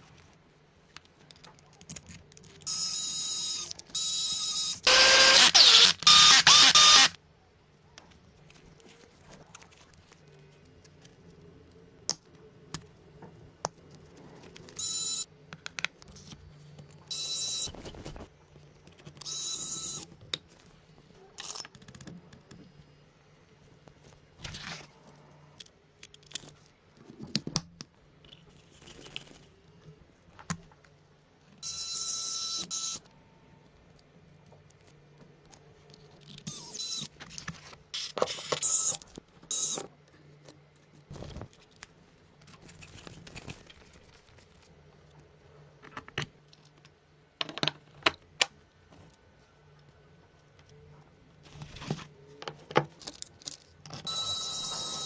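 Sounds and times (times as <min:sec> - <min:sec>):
small motor whirring: 0:04.3 - 0:07.2.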